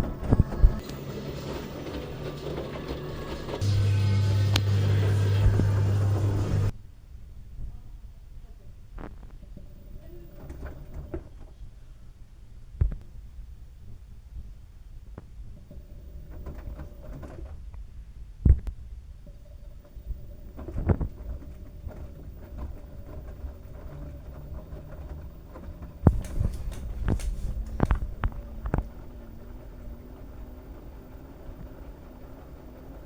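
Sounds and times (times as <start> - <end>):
washing machine drum rumbling: 21.2 - 30.6.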